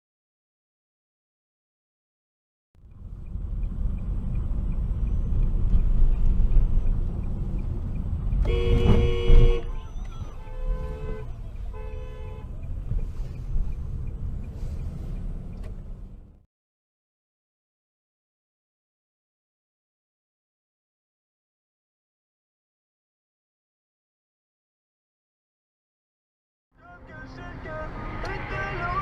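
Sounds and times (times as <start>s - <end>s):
road noise from moving car: 2.8s - 16.5s, 26.8s - 29.0s
car horn honking: 8.4s - 12.7s, 27.1s - 29.0s.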